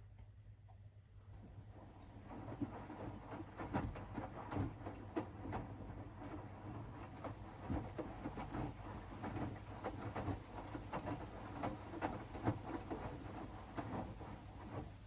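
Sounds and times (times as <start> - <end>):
laundry tumbling in washing machine: 1.4 - 15.0.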